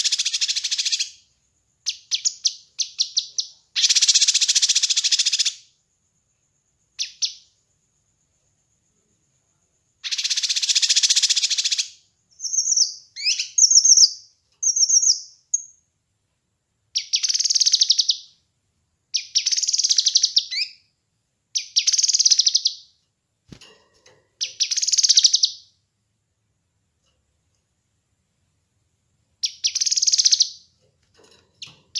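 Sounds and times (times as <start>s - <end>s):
songbird buzzy rattling trill: 0.0s - 5.8s, 10.0s - 15.8s, 16.9s - 18.4s, 19.1s - 20.9s, 21.5s - 22.9s, 24.0s - 25.8s, 29.4s - 31.9s.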